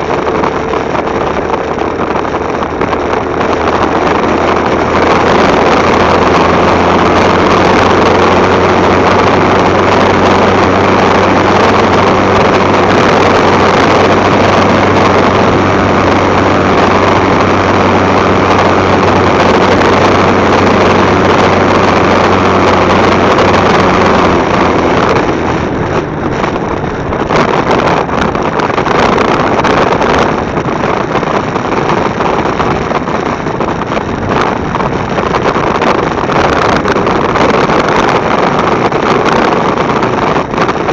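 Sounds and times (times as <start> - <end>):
motorcycle engine hum: 0.0 - 40.9
wind rushing over microphone: 0.0 - 40.9.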